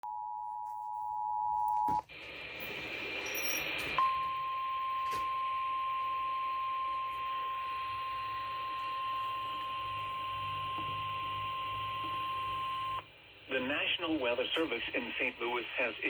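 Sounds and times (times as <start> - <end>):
steady high alarm tone: 3.1 - 13.0
faint radio hiss: 7.2 - 16.0.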